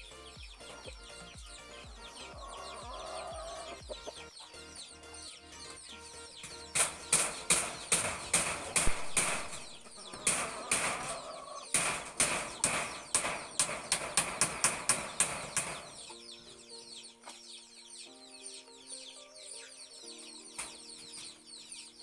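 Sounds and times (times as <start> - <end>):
music with held notes: 0.0 - 22.0
sharp knocks: 6.4 - 16.1.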